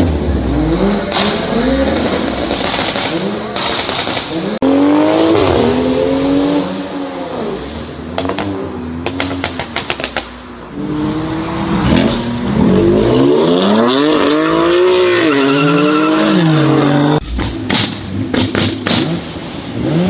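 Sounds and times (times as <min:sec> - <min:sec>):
car engine revving: 0:00.0 - 0:20.0
sharp exhaust pops and bangs: 0:01.1 - 0:04.6, 0:08.1 - 0:10.4, 0:17.2 - 0:19.5.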